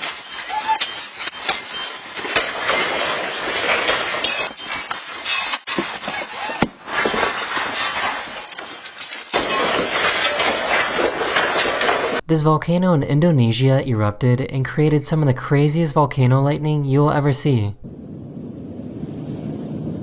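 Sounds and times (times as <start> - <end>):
building contents rattling: 0.0 - 12.2
falling objects crashing: 0.0 - 12.2.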